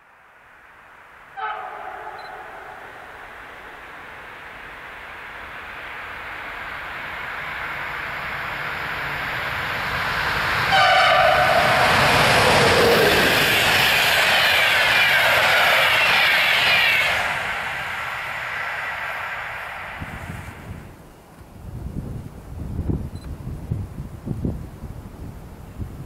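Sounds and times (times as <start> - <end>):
train rumble: 0.0 - 26.0
train horn blasts: 1.4 - 3.0, 10.7 - 12.1.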